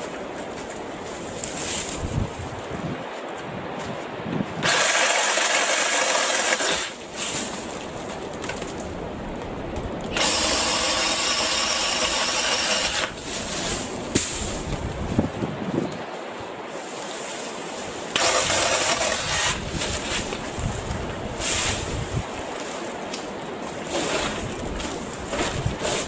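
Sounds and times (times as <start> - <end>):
cordless saw cutting branches: 4.6 - 7.6, 10.1 - 14.4, 18.1 - 20.6.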